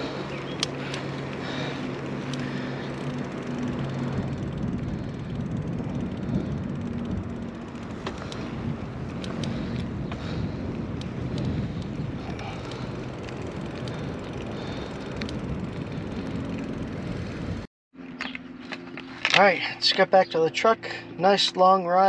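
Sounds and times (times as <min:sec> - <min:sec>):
bike tyres rolling: 0:00.0 - 0:20.0
bike clicks and rattles: 0:00.0 - 0:22.0
wind on microphone: 0:03.6 - 0:17.7.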